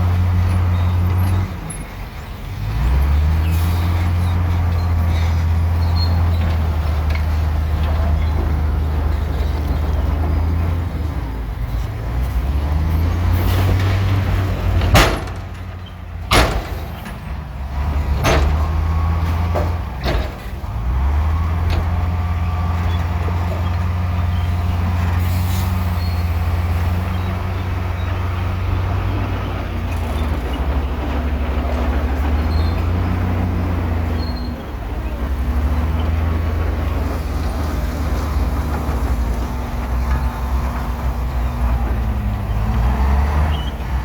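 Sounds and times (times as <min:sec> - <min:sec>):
diesel machinery engine running: 0:00.0 - 0:44.0.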